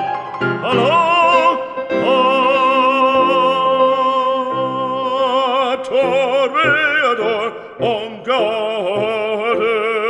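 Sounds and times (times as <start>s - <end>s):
orchestral accompaniment: 0.6s - 5.3s
operatic voice holding a note: 0.6s - 10.0s.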